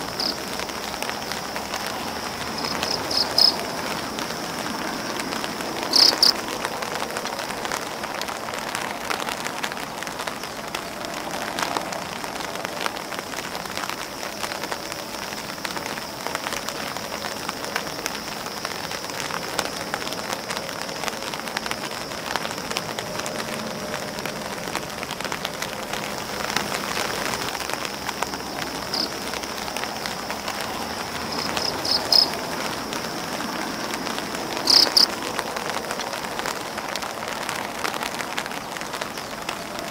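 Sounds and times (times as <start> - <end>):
sharp high ticks: 0.0 - 4.4, 5.8 - 6.7, 21.4 - 36.5
rain pattering on umbrella and grass: 0.0 - 39.9.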